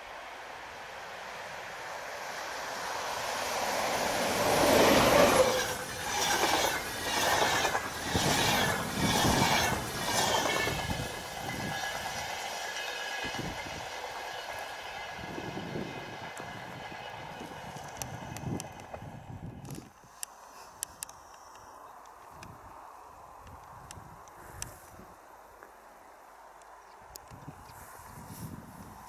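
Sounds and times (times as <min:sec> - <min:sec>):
rhythmic pulses of passing coaches: 0:00.0 - 0:19.2
passenger train passing at speed: 0:00.0 - 0:19.9.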